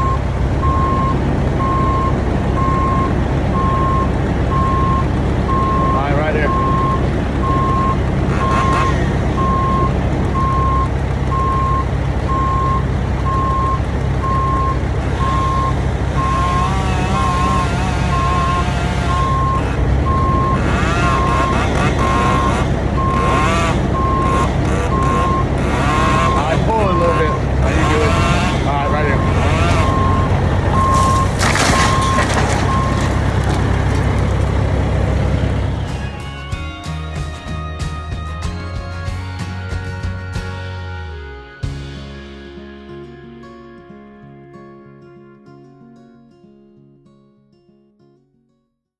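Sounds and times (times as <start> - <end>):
backup alarm beeping: 0.0 - 36.2
loud engine running: 0.0 - 36.6
music: 35.8 - 48.6.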